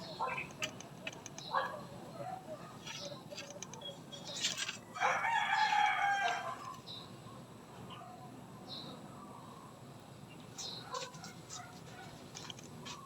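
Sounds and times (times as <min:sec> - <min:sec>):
faint chirps and clicks: 0:00.0 - 0:01.7, 0:02.8 - 0:04.8
rooster crowing: 0:04.9 - 0:06.8.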